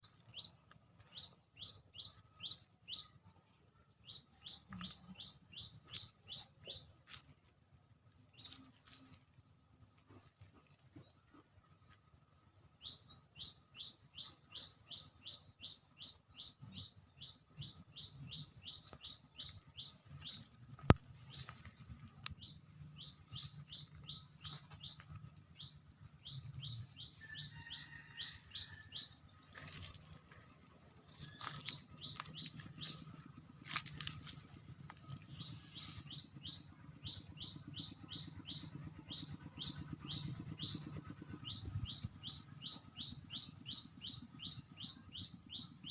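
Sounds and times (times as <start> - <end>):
bird chirping: 0.0 - 3.4, 4.0 - 7.0, 12.7 - 45.9
faint low rumble: 16.4 - 45.9.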